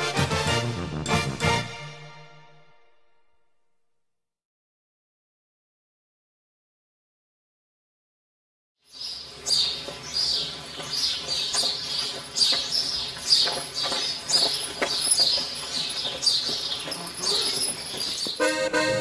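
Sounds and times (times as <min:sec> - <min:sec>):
bird chirping falling call: 0:08.9 - 0:18.5.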